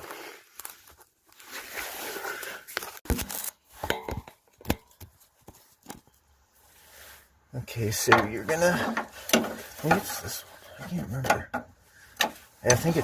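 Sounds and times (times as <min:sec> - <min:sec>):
tools and parts being handled: 0:02.7 - 0:06.3, 0:08.0 - 0:13.0.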